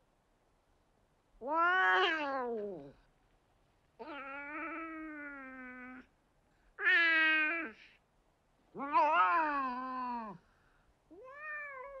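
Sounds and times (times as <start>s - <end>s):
cat meowing: 1.4s - 3.0s, 8.7s - 10.4s, 11.1s - 12.0s.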